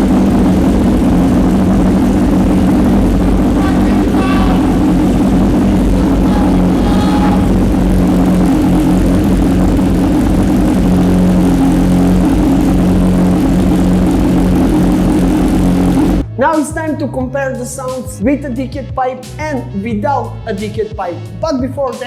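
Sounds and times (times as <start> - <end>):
motorcycle engine idling loudly: 0.0 - 16.2.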